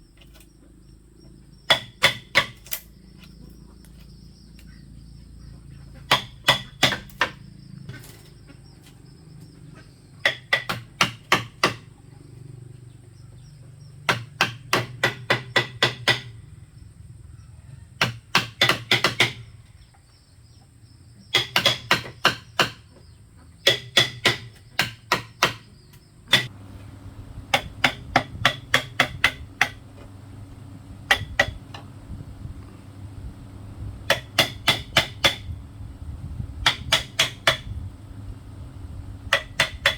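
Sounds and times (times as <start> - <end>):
hammer striking bamboo: 1.7 - 2.8, 6.1 - 7.4, 10.2 - 11.9, 14.1 - 16.3, 18.0 - 19.4, 21.3 - 22.8, 23.6 - 25.6, 26.3 - 30.2, 31.0 - 31.9, 34.0 - 35.6, 36.6 - 37.7, 39.3 - 39.9.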